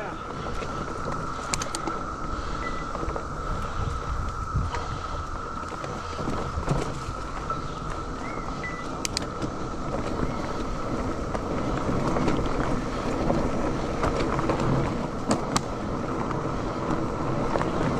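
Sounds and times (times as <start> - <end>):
bike tyres rumbling on dirt: 0.0 - 17.9
cicadas chorus: 0.0 - 17.9
rattling clicks: 1.4 - 2.0, 9.0 - 9.4.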